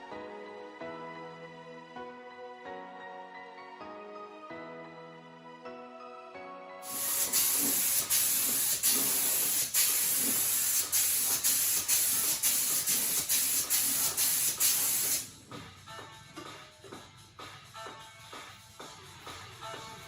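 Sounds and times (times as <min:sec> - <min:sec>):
spray can hissing: 0:06.8 - 0:15.3.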